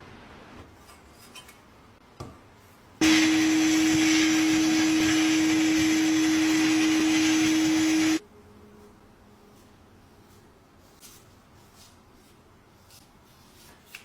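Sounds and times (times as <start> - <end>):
electric power tool whining: 3.0 - 8.2.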